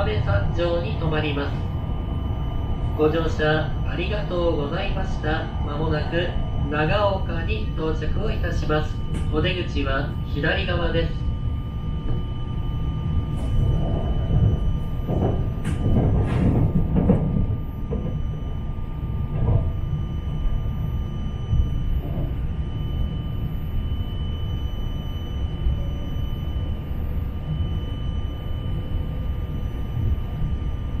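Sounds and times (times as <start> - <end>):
train cabin rumble: 0.0 - 18.6.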